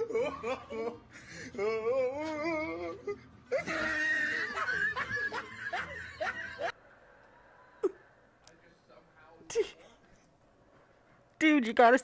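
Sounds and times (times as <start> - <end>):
people laughing: 0.0 - 1.1, 3.5 - 6.8.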